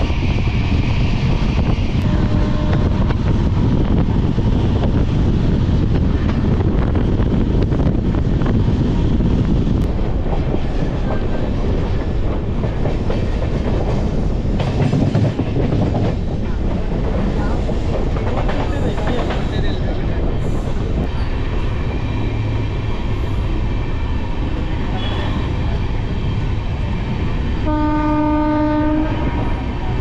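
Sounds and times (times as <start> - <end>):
train coach rumbling: 0.0 - 30.0
wheels clacking over rails: 9.9 - 19.9.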